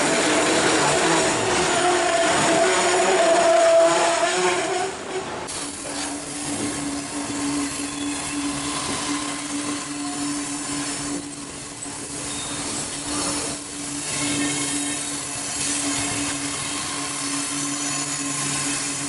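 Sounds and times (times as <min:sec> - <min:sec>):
freight train rolling on rails: 0:00.0 - 0:19.0.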